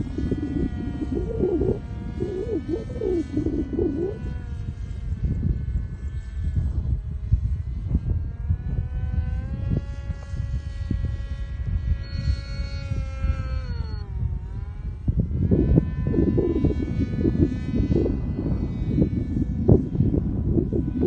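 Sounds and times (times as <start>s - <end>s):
low rumble: 0.0s - 9.0s
model aircraft propeller buzzing: 0.0s - 21.0s.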